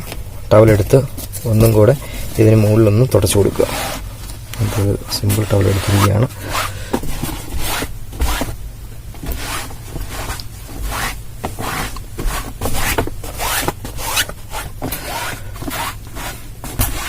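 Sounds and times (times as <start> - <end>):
towel rubbing cloth seat: 3.2 - 8.6, 9.2 - 17.0.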